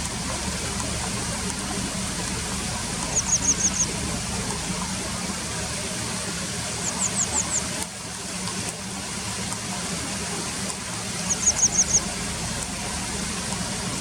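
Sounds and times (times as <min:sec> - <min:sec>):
river water rushing: 0:00.0 - 0:14.0
bird calling with sharp high chips: 0:03.1 - 0:03.9, 0:11.2 - 0:12.1.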